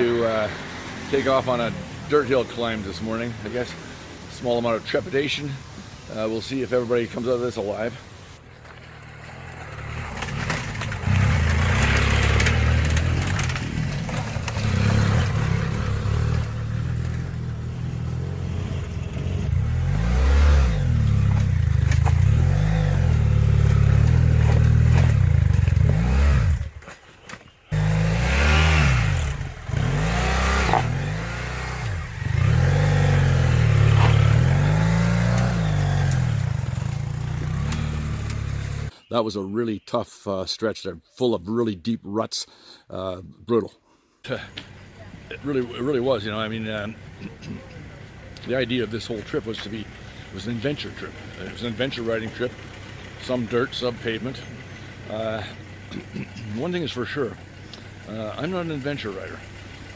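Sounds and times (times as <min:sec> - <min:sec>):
motorcycle engines revving: 0:00.0 - 0:38.9, 0:44.3 - 0:59.9
bikes clattering and scraping: 0:05.8 - 0:38.9.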